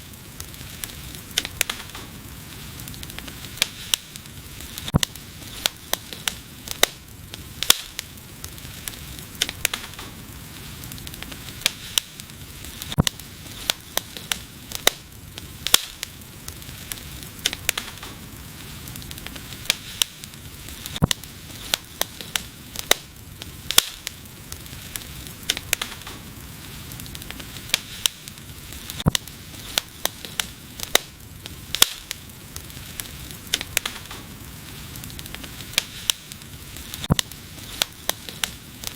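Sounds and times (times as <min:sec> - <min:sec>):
fire hissing softly: 0:00.0 - 0:38.9
wood fire crackling and popping: 0:00.0 - 0:38.9.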